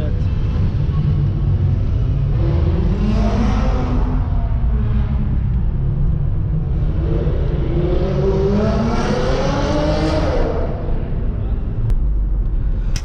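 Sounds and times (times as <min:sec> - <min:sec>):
car engine revving: 0:00.0 - 0:11.8.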